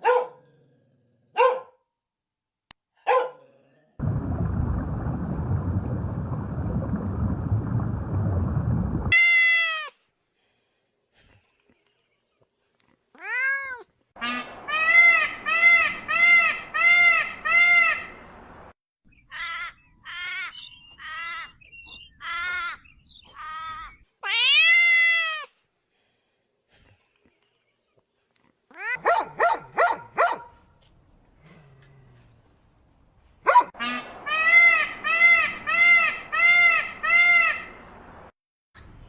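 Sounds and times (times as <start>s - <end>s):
cat meowing: 13.2s - 13.8s, 24.2s - 25.5s.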